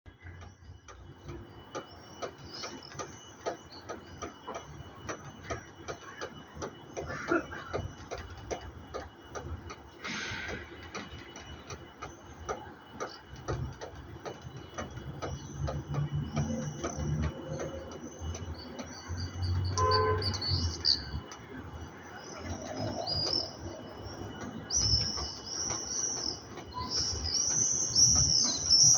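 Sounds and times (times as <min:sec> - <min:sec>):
birds chirping: 0:10.5 - 0:28.9.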